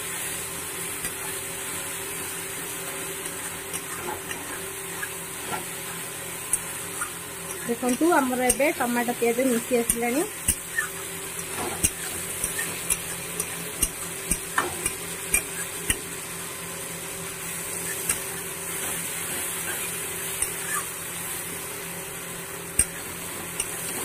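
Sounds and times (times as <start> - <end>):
onions and tomatoes sizzling: 0.0 - 24.0.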